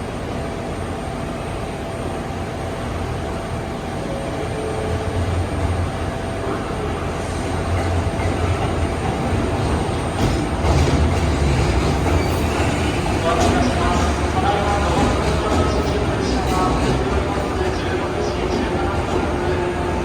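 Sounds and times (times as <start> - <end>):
train rumbling on rails: 0.0 - 20.0
wheels clacking over rail joints: 7.7 - 19.2.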